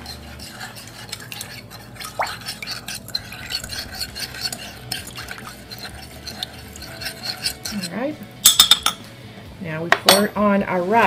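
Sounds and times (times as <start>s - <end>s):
spoon clinking in glass cup: 8.4s - 9.0s.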